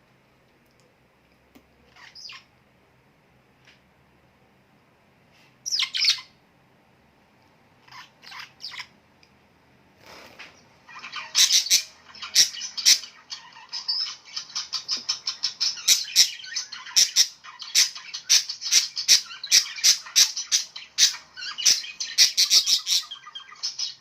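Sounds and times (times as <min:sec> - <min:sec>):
small birds chirping: 0:01.6 - 0:02.6, 0:05.4 - 0:06.4, 0:07.8 - 0:09.3, 0:10.0 - 0:24.0.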